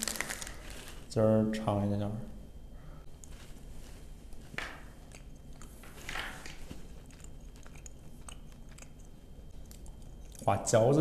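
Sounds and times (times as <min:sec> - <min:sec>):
chewing candy mouth sounds: 0:06.9 - 0:10.5.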